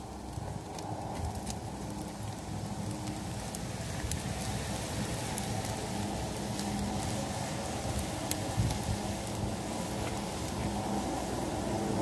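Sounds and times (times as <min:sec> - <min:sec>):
wood fire popping and crackling: 0:00.0 - 0:12.0
food sizzling in a wok: 0:02.5 - 0:12.0.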